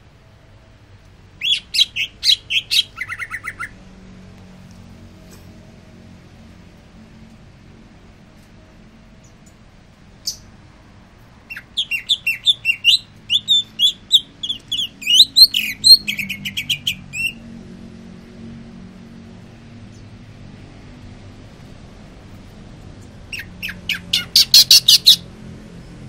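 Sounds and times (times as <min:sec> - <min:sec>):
bird singing whistled notes: 0:01.4 - 0:03.8, 0:11.5 - 0:17.4, 0:23.3 - 0:25.2.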